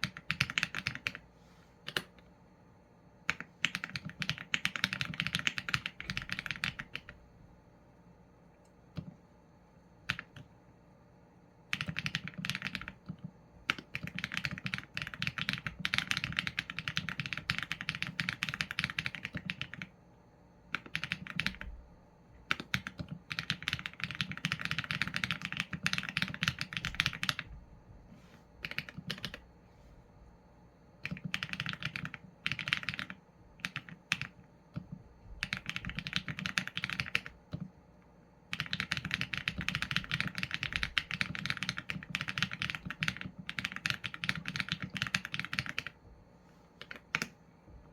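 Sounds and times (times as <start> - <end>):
mechanical keyboard typing: 0.0 - 1.2, 1.9 - 2.2, 3.2 - 7.2, 10.0 - 10.5, 11.7 - 20.0, 20.7 - 21.8, 22.4 - 27.5, 28.6 - 29.4, 31.0 - 37.7, 38.5 - 46.0, 46.8 - 47.4.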